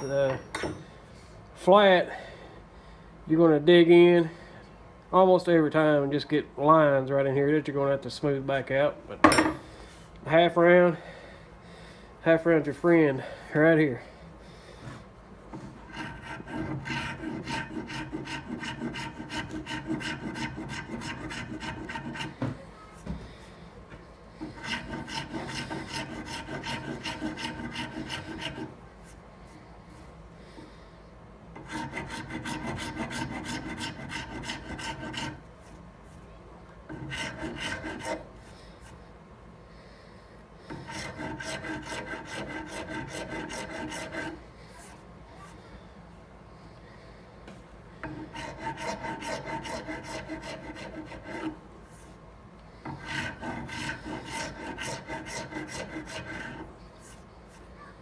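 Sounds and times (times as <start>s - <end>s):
hand file scraping knife handle: 15.9s - 22.4s, 24.4s - 28.7s, 31.6s - 35.4s, 36.9s - 38.2s, 40.7s - 44.9s, 48.0s - 52.1s, 52.8s - 57.2s.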